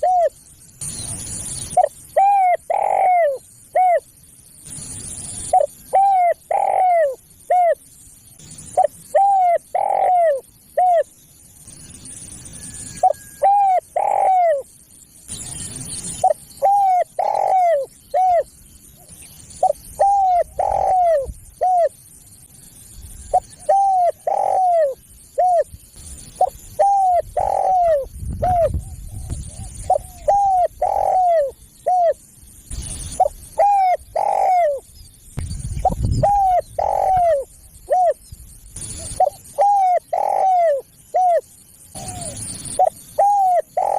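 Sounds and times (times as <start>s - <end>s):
dove cooing: 0.0s - 0.4s, 1.7s - 4.1s, 5.4s - 7.8s, 8.7s - 11.1s, 13.0s - 14.7s, 16.1s - 22.0s, 23.3s - 25.7s, 26.4s - 32.2s, 33.2s - 34.8s, 35.8s - 38.2s, 38.8s - 43.9s.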